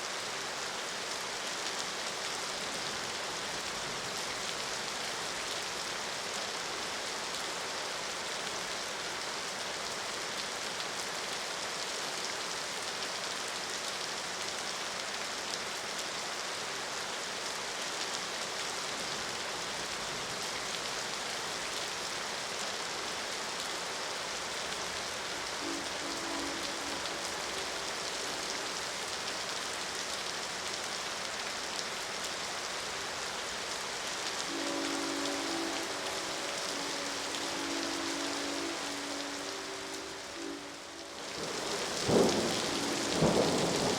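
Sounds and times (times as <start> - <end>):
rain pattering: 0.0 - 43.9
low horn note: 25.2 - 29.2, 34.0 - 43.9.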